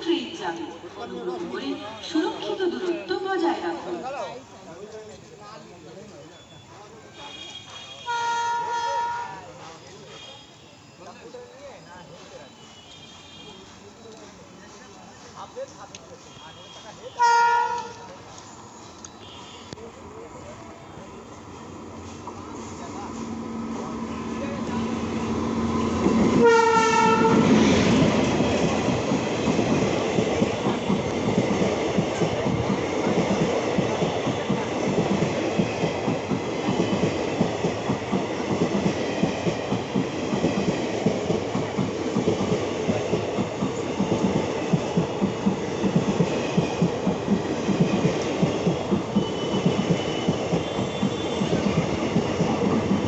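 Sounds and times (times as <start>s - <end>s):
train horn: 7.1s - 9.4s, 16.3s - 18.1s, 26.3s - 27.7s, 49.2s - 51.8s
train wheels clattering on rails: 22.0s - 53.0s.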